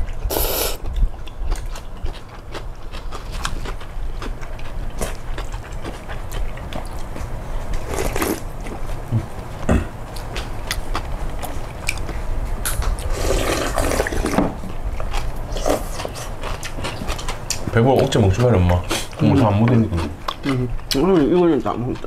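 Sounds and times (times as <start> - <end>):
wet slurping of noodles: 0.3 - 0.8, 13.0 - 14.4.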